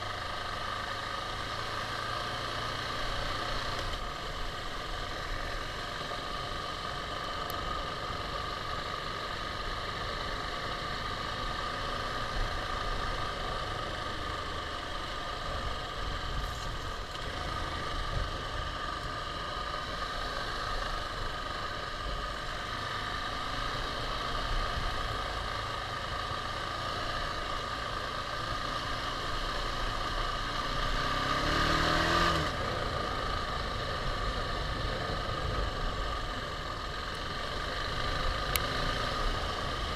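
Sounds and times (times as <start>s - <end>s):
motorcycle engine running: 0.0s - 39.9s
road noise: 0.0s - 39.9s.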